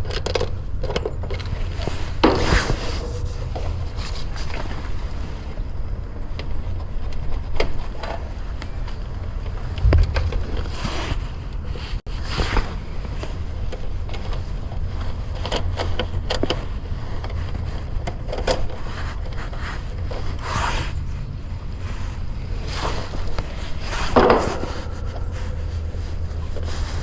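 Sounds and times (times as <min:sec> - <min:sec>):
steady low rumble: 0:03.0 - 0:20.4
scrapes and clicks of hands working: 0:06.4 - 0:21.1.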